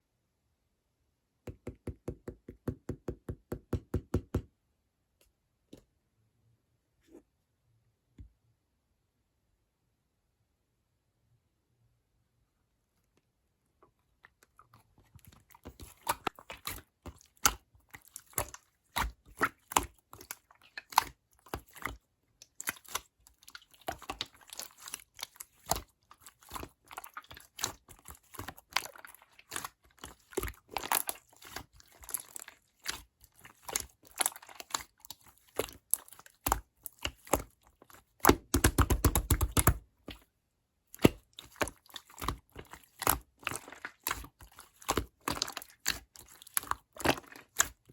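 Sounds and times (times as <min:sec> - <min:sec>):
slime squished by hand: 0:14.3 - 0:40.2, 0:40.9 - 0:47.9.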